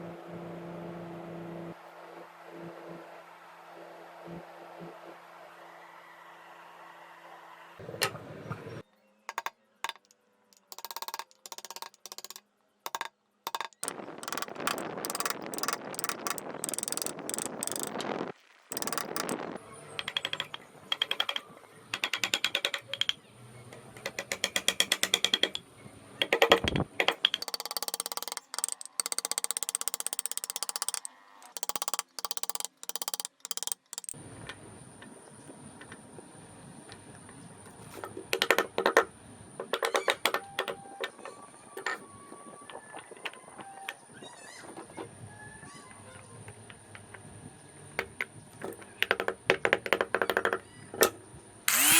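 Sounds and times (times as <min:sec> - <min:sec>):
rapid clicks and taps: 0:09.3 - 0:23.2, 0:26.2 - 0:34.2.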